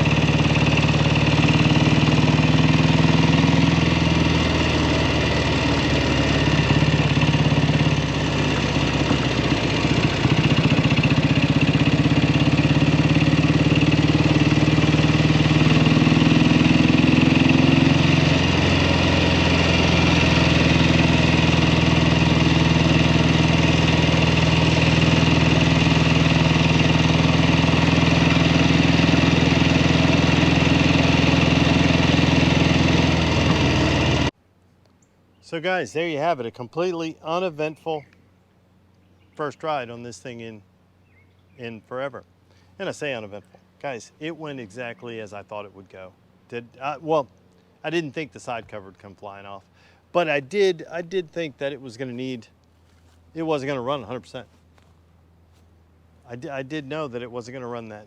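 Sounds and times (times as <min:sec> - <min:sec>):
motorcycle engine running: 0:00.0 - 0:34.4.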